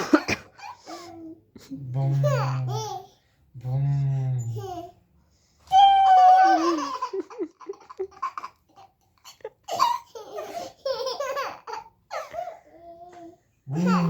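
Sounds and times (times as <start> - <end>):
babies laughing: 6.2 - 12.6.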